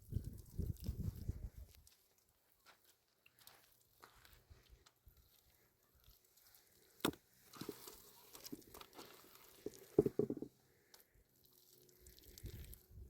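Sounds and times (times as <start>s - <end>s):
crinkling and tearing: 6.1s - 10.0s.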